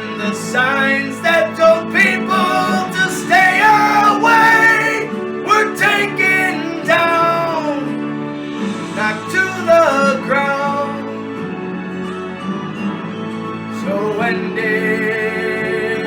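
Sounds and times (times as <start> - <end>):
person singing: 0.0 - 8.0, 8.9 - 11.2, 13.7 - 16.0.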